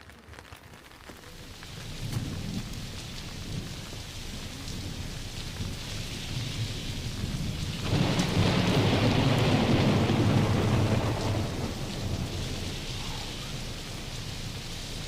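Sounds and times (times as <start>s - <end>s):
steady rain: 0.0s - 15.0s
rolling thunderclap: 1.8s - 15.0s.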